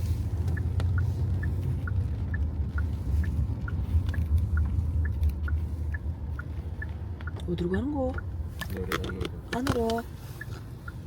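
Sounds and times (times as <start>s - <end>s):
road and engine rumble: 0.0s - 11.0s
turn signal ticking: 0.0s - 11.0s.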